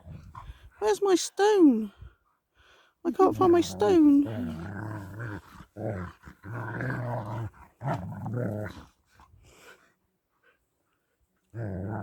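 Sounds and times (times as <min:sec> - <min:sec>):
dog grumbling: 0:03.3 - 0:08.8.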